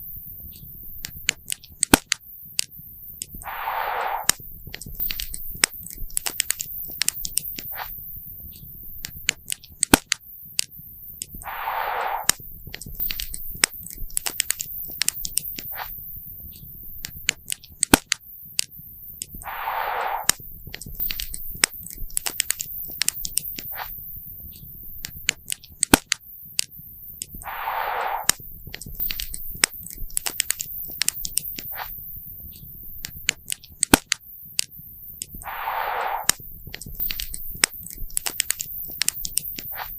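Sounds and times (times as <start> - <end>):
sharp pops and snaps: 0.5 - 39.9
short hiss: 3.4 - 4.4, 11.4 - 12.4, 19.4 - 20.4, 27.4 - 28.5, 35.4 - 38.0.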